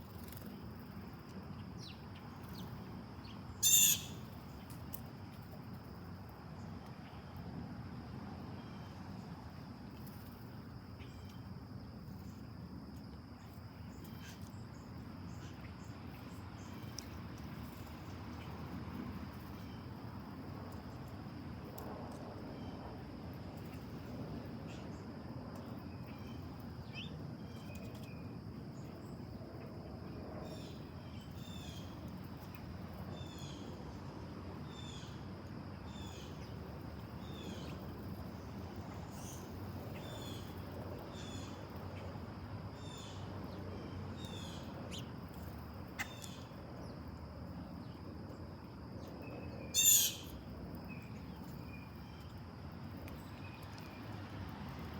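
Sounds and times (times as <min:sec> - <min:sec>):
outdoor background noise: 0:00.0 - 0:54.9
bird call: 0:03.6 - 0:04.2, 0:49.8 - 0:50.3.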